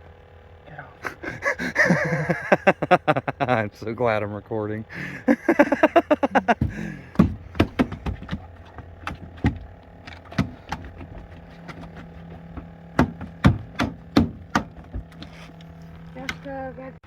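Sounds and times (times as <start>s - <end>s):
steady low hum: 0.0s - 17.0s
sharp knocks and thuds on boat: 5.5s - 15.6s.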